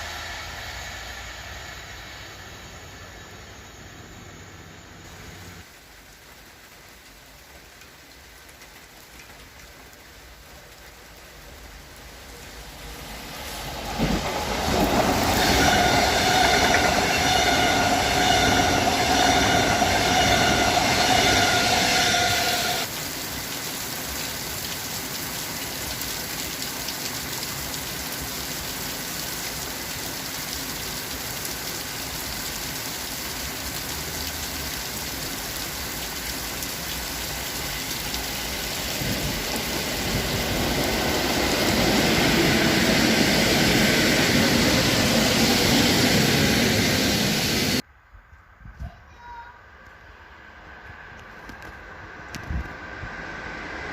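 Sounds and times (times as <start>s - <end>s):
high ringing tone: 0.0s - 5.0s
train rolling on rails: 0.0s - 47.8s, 49.7s - 53.9s.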